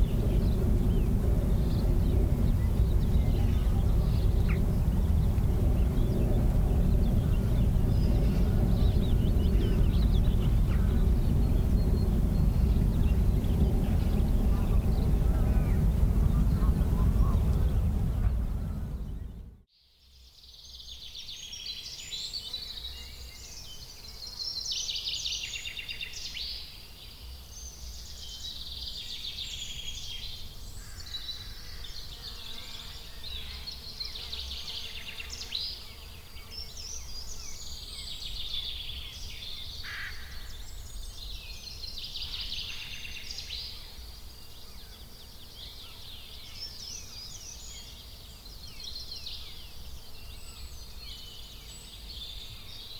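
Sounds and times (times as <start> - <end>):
small birds chirping and singing: 0.0 - 19.5
low steady rumble: 0.0 - 19.6.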